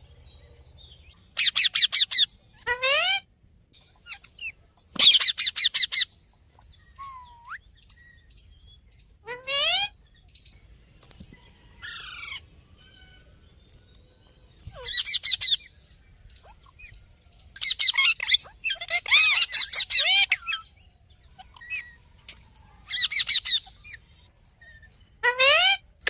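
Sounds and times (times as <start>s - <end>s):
parrots squawking: 1.4s - 3.3s, 4.0s - 6.1s, 7.0s - 7.6s, 9.2s - 10.0s, 14.7s - 15.7s, 17.6s - 20.7s, 22.8s - 24.1s, 25.2s - 25.9s.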